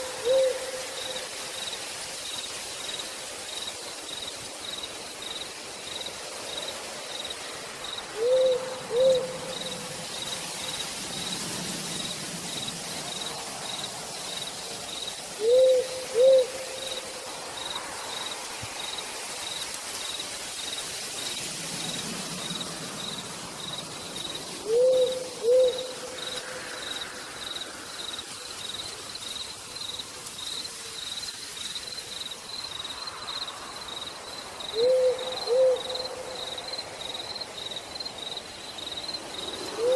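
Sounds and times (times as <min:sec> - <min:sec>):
owl hooting: 0:00.0 - 0:01.2, 0:08.1 - 0:09.5, 0:15.4 - 0:17.0, 0:24.6 - 0:26.1, 0:34.7 - 0:36.2
cricket chirping: 0:00.0 - 0:39.9
steady rain: 0:00.0 - 0:39.9.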